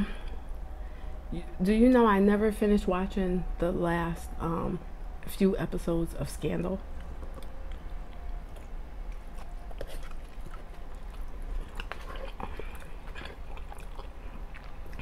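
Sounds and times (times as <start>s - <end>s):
person chewing wetly: 6.9s - 15.0s.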